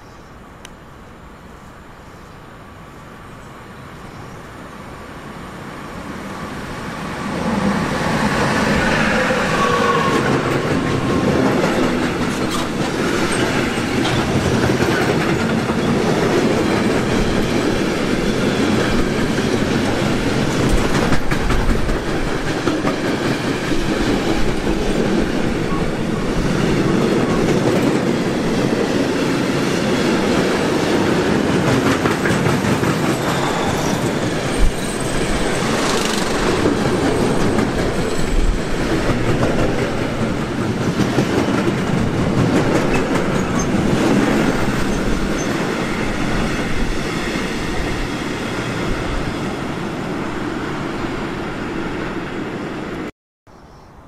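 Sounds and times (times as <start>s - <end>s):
train wheels clattering: 8.7s - 28.8s, 29.9s - 46.6s.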